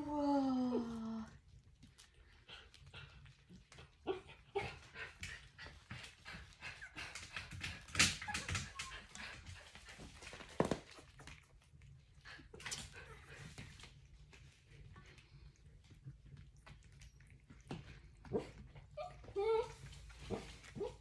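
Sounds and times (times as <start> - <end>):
puppies squeaking and whimpering: 19.0 - 21.0.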